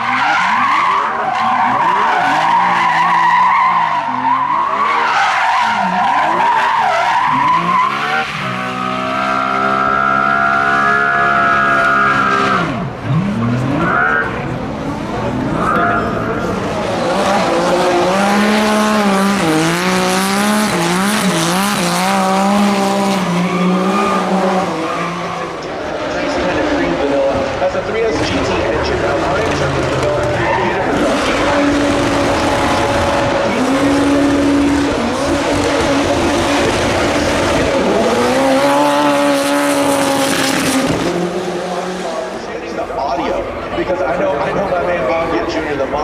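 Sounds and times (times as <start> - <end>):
tyre squeal: 0.0 - 12.8
tyres squealing: 0.0 - 14.5, 15.6 - 26.7
car engine revving: 0.0 - 46.0.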